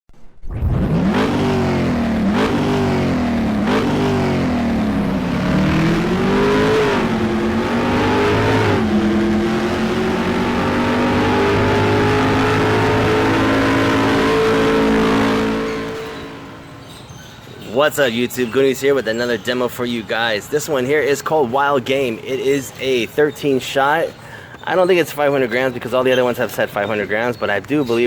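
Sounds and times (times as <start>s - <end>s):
vehicle engine revving: 0.5s - 17.0s.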